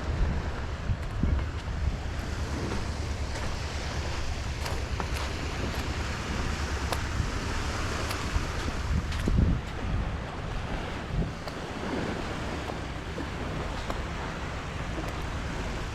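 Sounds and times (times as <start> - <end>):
surf on beach: 0.0 - 15.9
wind buffeting microphone: 0.0 - 15.9
faint ticks: 6.8 - 7.2.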